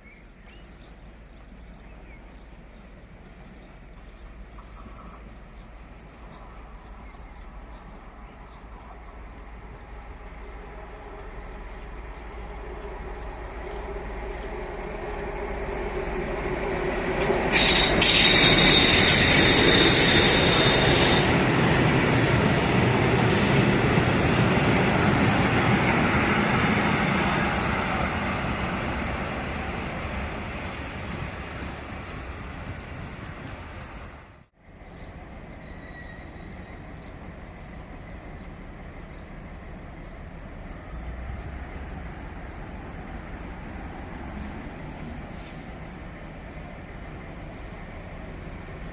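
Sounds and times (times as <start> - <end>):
train passing: 0.0 - 48.9
wheels and brakes squealing: 17.2 - 22.5, 23.1 - 23.6, 35.6 - 36.8.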